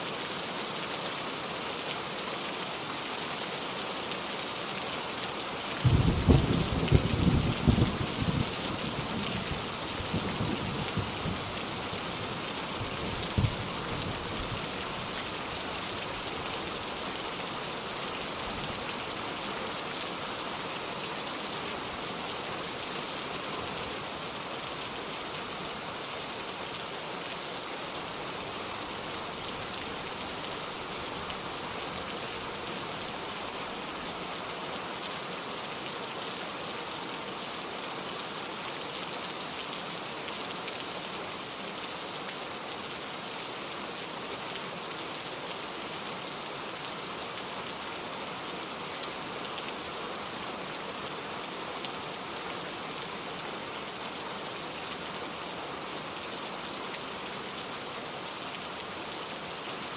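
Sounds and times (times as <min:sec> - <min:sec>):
steady rain falling: 0:00.0 - 0:59.9
thunder rolling: 0:05.8 - 0:08.4.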